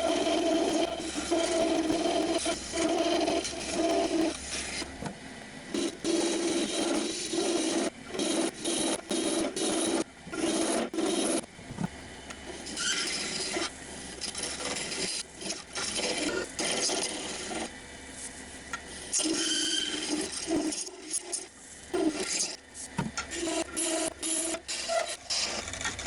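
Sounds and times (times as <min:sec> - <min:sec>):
lathe tool scraping wood: 0:00.0 - 0:04.9, 0:05.7 - 0:11.4, 0:12.5 - 0:17.7, 0:19.0 - 0:26.0.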